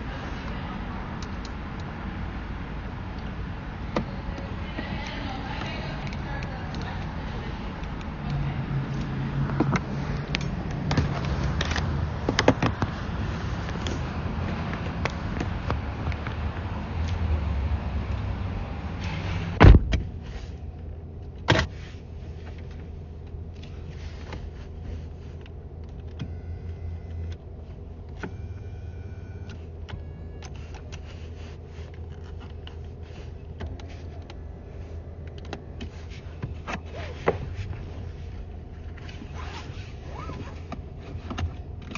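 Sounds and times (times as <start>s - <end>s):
low cabin hum: 0.0s - 41.9s
loud thump: 19.6s - 20.2s
small clicks and rustles: 29.4s - 41.9s.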